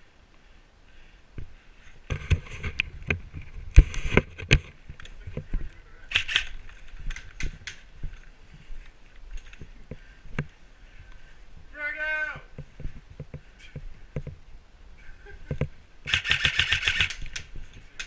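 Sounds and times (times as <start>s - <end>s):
gear clicking and rattling: 2.1s - 8.3s, 15.5s - 18.0s.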